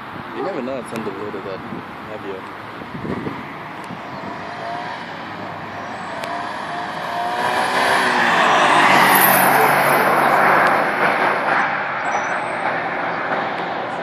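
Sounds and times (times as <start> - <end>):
car engine driving past: 3.1 - 14.0.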